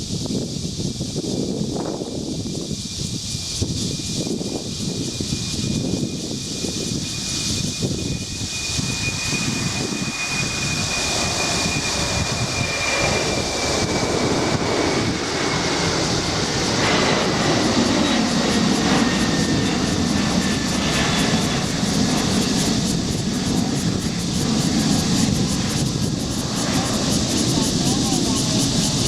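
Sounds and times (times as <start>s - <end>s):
jet engines passing: 0.0s - 29.0s.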